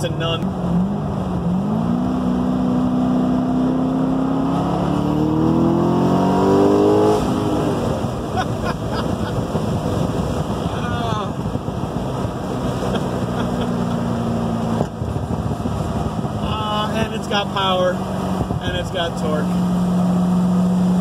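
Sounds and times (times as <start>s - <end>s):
car engine accelerating: 0.0s - 21.0s
road and tyre noise: 0.0s - 21.0s.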